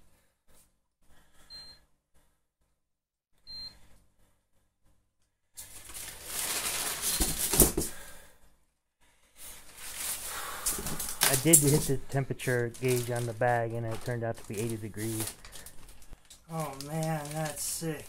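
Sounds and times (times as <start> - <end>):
packaging rustling and crinkling: 5.6 - 8.0, 9.4 - 18.0.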